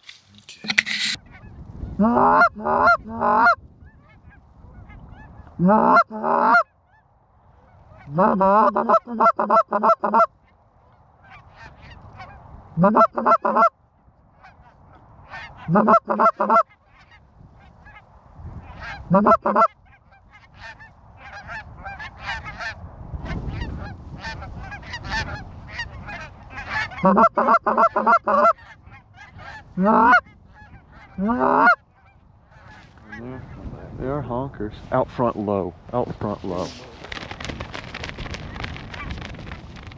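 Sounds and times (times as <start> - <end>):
goose honking: 0.0 - 1.2, 12.8 - 13.7, 15.6 - 16.6, 19.1 - 19.7, 24.2 - 33.5.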